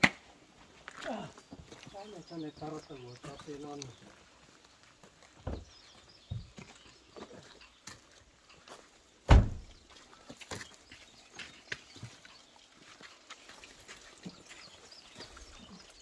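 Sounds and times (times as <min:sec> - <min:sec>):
irregular thumps and knocks: 0:05.5 - 0:05.7, 0:09.3 - 0:09.8.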